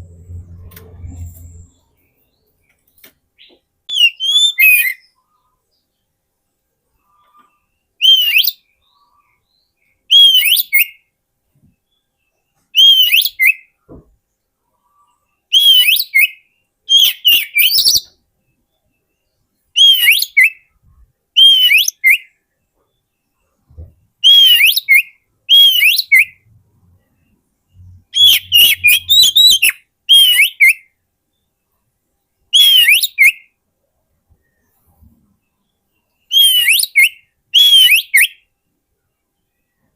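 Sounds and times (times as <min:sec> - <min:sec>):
magpie-robin whistled song: 0:03.4 - 0:05.9, 0:07.1 - 0:11.1, 0:12.7 - 0:13.8, 0:15.4 - 0:26.5, 0:27.1 - 0:31.5, 0:32.5 - 0:33.6, 0:35.6 - 0:38.6.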